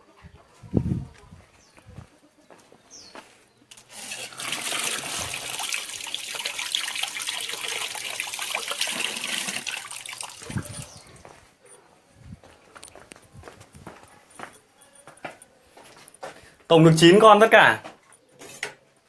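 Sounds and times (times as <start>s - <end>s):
water pouring: 3.7s - 11.2s.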